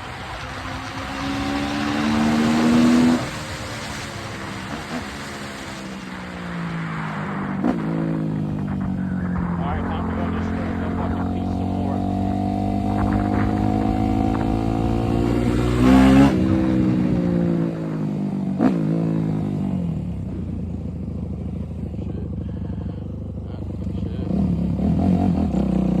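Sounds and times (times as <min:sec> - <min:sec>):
dirt bike engine revving: 0:00.0 - 0:19.4.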